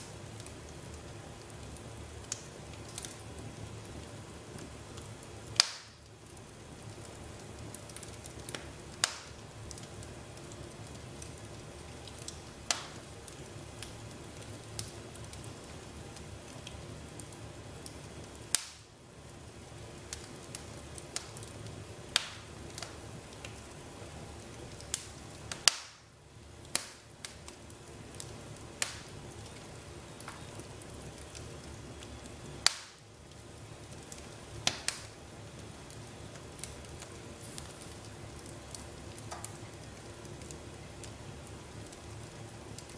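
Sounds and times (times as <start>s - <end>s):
fireplace fire crackling and popping: 0.0s - 42.9s.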